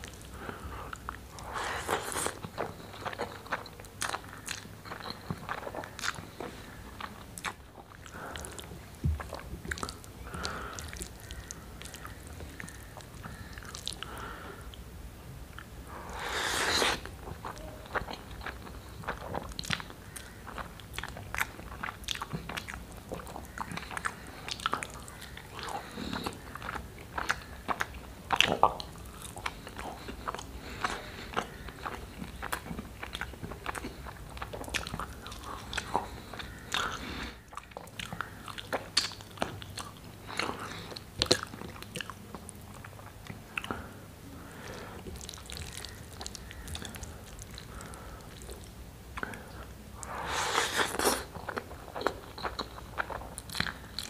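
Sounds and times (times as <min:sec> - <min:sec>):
wet chewing and lip smacks: 0:17.3 - 0:43.8, 0:45.0 - 0:54.0.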